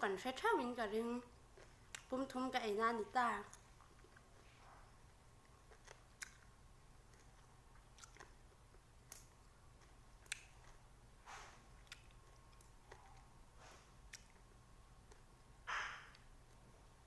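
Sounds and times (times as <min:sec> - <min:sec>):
chewing limes: 0:01.5 - 0:02.3, 0:03.4 - 0:11.0, 0:11.6 - 0:15.5.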